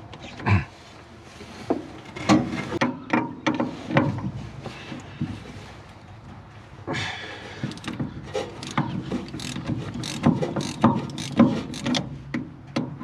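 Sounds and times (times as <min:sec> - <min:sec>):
hand tools clanking on metal: 0:01.7 - 0:02.8.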